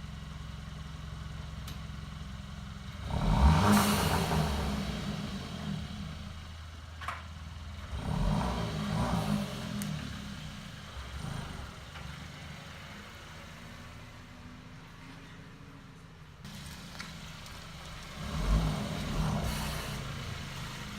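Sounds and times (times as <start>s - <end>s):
car exhaust revving: 2.8s - 6.7s, 7.5s - 14.1s, 16.5s - 20.9s.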